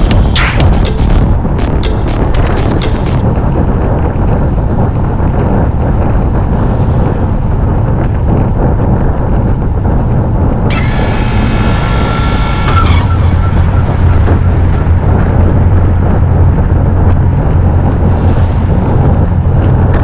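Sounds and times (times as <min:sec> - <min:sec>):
wind buffeting microphone: 0:00.0 - 0:20.0
high-pitched squeal: 0:10.7 - 0:16.8.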